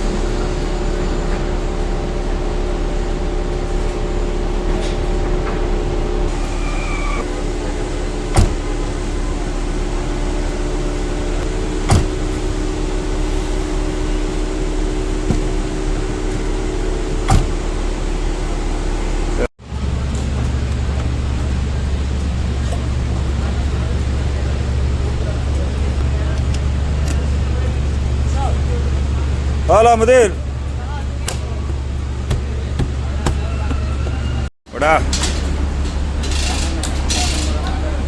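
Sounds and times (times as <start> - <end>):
power window motor whirring: 6.3 - 10.1.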